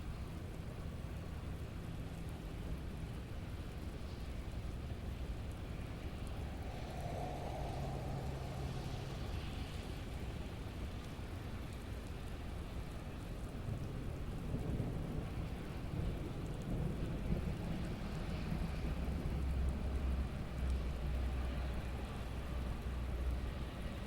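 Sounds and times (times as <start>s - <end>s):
rain falling: 0.0s - 24.0s
low thunder rumble: 4.6s - 10.9s.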